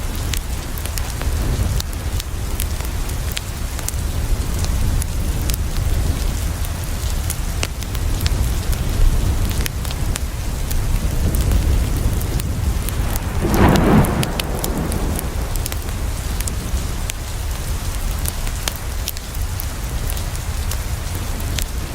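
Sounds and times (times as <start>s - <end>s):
low continuous rumble: 0.0s - 21.9s
rain on a window: 0.0s - 21.9s
wood fire crackling: 0.0s - 21.9s
rushing swell: 12.8s - 16.6s.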